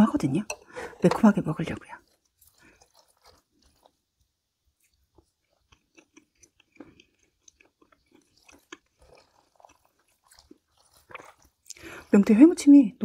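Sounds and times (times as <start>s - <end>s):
person chewing noodles: 2.0s - 12.2s.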